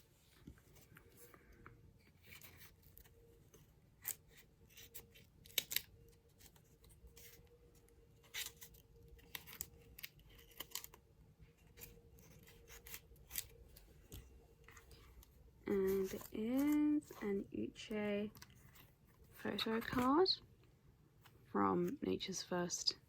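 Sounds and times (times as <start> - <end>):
packaging crinkling and tearing: 8.2 - 11.0.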